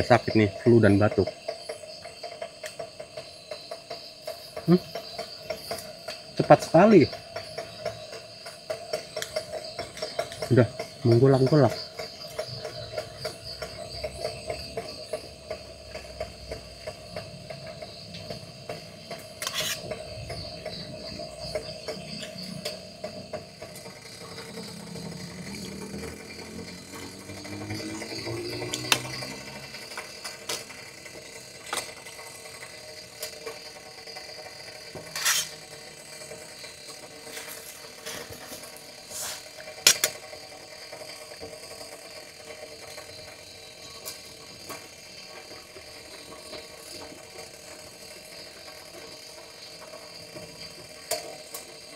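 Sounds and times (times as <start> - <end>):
night insects chirring: 0.0 - 51.9
sharp clicks and knocks: 0.7 - 38.9, 39.5 - 51.9.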